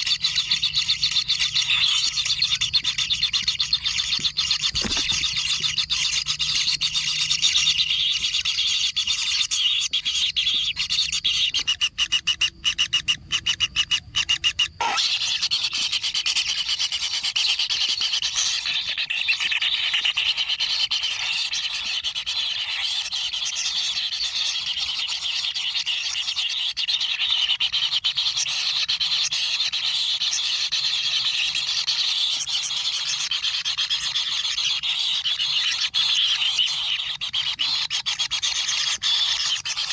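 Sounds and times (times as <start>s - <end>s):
nestlings calling: 0.0s - 39.9s.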